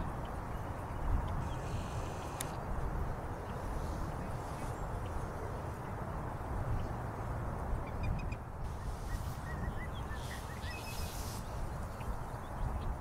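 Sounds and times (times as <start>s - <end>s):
small birds chirping faintly: 0.0s - 13.0s.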